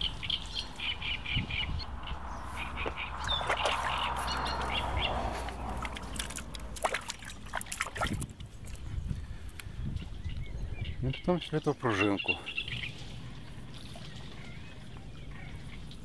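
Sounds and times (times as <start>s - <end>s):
small bird chirping: 0.0s - 5.1s
water splashing in a plastic bucket: 2.9s - 8.8s, 12.9s - 16.0s.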